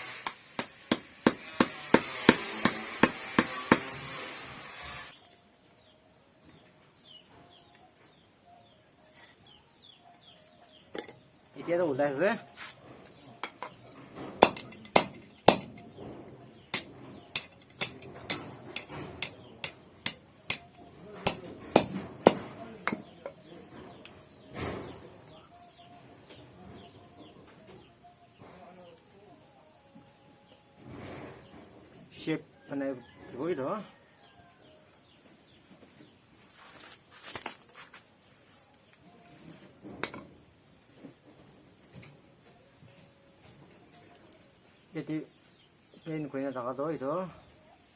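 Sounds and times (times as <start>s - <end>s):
crickets chirring: 0.0s - 47.9s
sharp knocks on steel wire: 0.2s - 3.9s, 14.4s - 15.8s, 16.8s - 20.7s, 21.3s - 23.1s.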